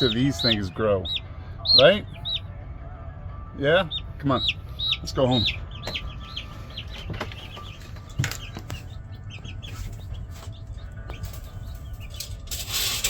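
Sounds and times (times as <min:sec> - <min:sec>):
chicks peeping: 0:00.0 - 0:13.0
sharp knocks: 0:05.8 - 0:06.2.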